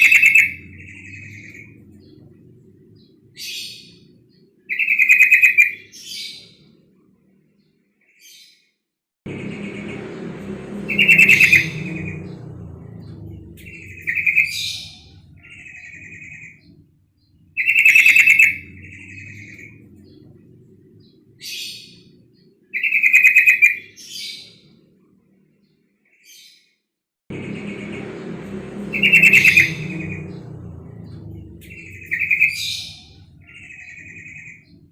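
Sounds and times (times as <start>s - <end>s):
low background rumble: 0.0s - 4.7s, 9.3s - 22.7s, 27.3s - 34.9s.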